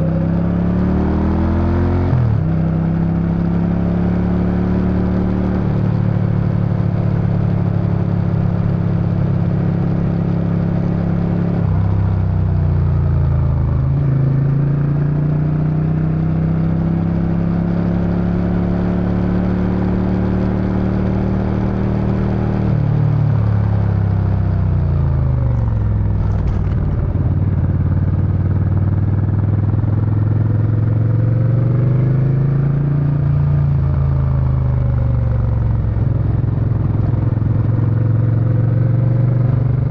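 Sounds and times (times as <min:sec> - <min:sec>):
motorcycle engine running: 0:02.3 - 0:39.9.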